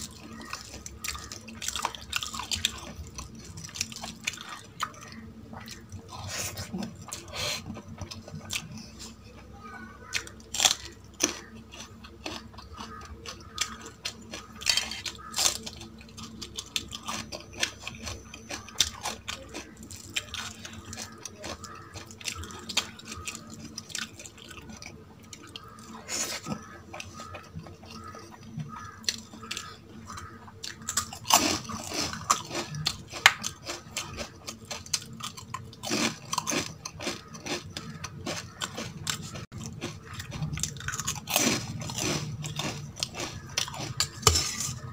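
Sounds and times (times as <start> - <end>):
person chewing: 0.0 - 44.9
crisp crunching bites: 30.7 - 44.9.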